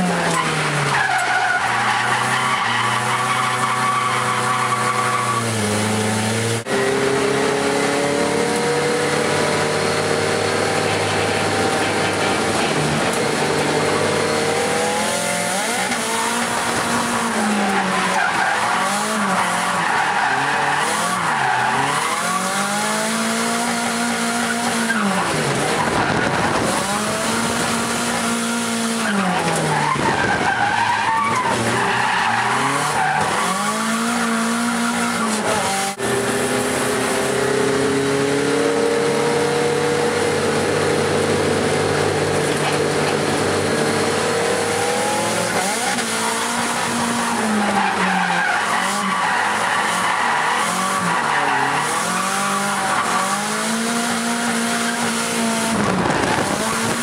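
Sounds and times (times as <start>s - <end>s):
car engine revving: 0.0s - 57.0s
tyres skidding: 0.0s - 57.0s.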